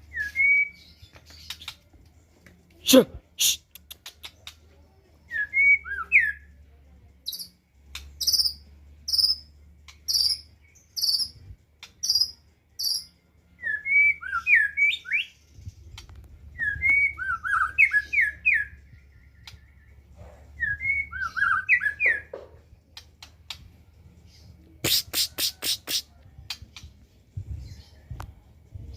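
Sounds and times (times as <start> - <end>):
bird singing whistled notes: 0.0 - 1.8, 5.3 - 6.5, 8.2 - 9.5, 10.1 - 22.3.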